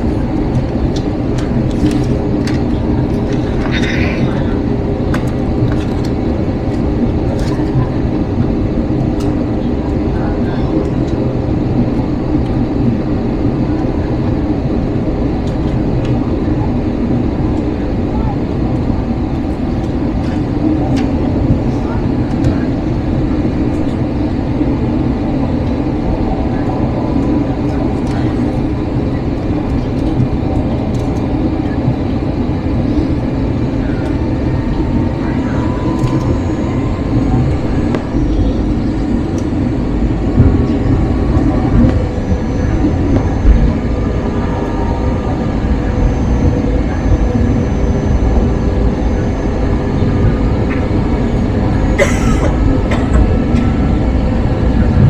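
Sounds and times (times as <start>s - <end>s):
airliner cabin rumble: 0.0s - 55.0s.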